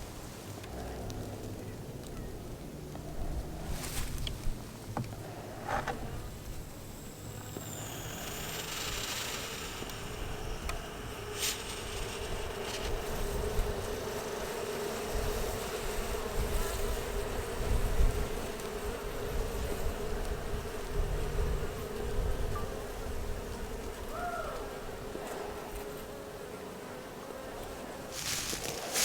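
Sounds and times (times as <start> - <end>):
bees buzzing: 0.4 - 29.0.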